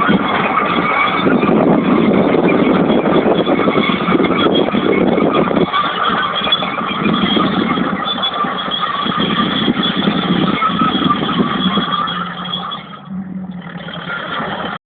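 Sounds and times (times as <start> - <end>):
diesel engine running under load: 0.0 - 14.8.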